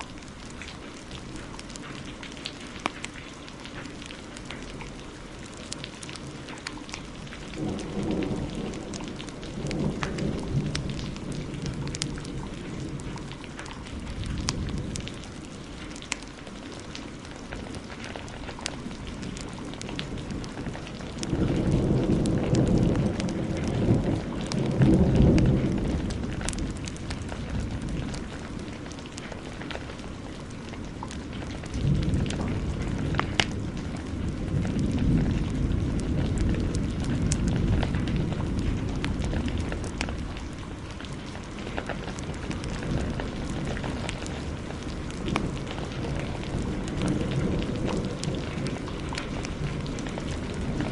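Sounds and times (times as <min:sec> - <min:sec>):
heavy rain falling: 0:00.0 - 0:50.9
wood fire crackling: 0:00.0 - 0:50.9
thunder rumbling: 0:03.8 - 0:50.9.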